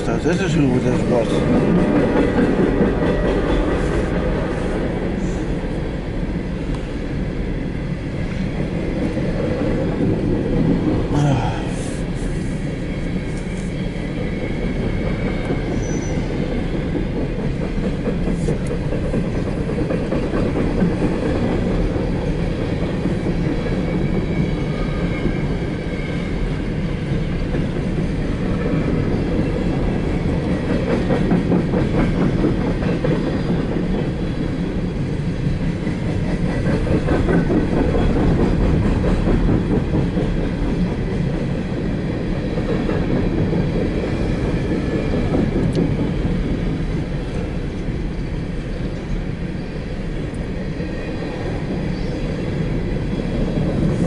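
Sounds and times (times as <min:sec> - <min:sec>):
wheels clattering on rails: 0:00.0 - 0:05.1, 0:13.4 - 0:25.7, 0:26.4 - 0:48.0
freight train rumbling past: 0:00.0 - 0:54.0.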